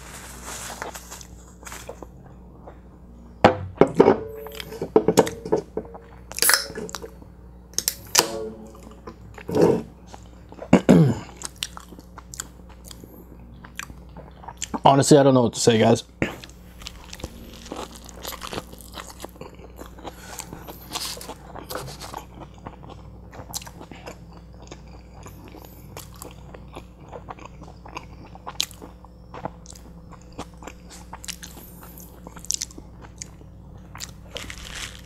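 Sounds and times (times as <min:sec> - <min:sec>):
chewing with crunches and clicks: 0:08.9 - 0:15.0, 0:15.8 - 0:35.0
biting into tortilla: 0:34.0 - 0:35.0.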